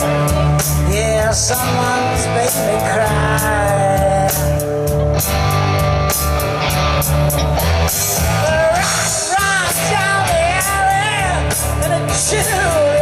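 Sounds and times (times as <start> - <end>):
rock band playing: 0.0 - 13.0.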